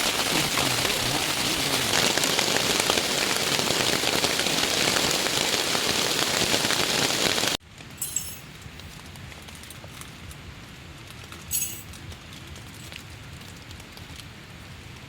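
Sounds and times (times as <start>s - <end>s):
heavy rain falling: 0.0s - 7.6s
light clinks: 8.0s - 8.5s, 11.5s - 12.0s.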